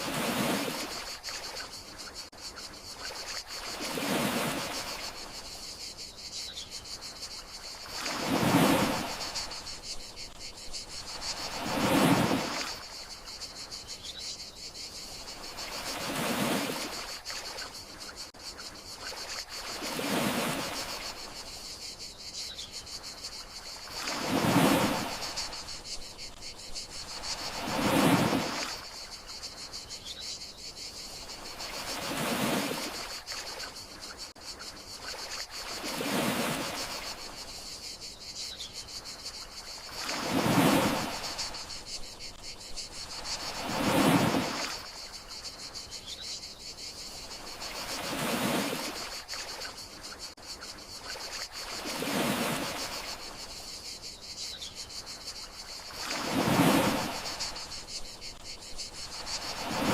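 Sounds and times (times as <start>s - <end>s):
sea waves washing ashore: 0.0s - 5.6s, 7.3s - 13.5s, 15.0s - 18.2s, 18.9s - 21.6s, 23.4s - 29.5s, 31.2s - 33.9s, 35.0s - 37.6s, 39.2s - 45.6s, 47.1s - 53.6s, 55.6s - 59.9s
crickets chirring: 0.0s - 59.9s.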